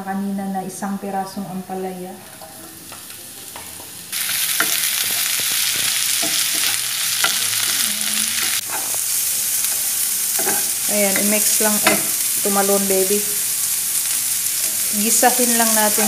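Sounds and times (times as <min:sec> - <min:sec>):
vegetables sizzling in hot oil: 0:02.2 - 0:16.0
spatula scraping a pan: 0:04.2 - 0:12.2.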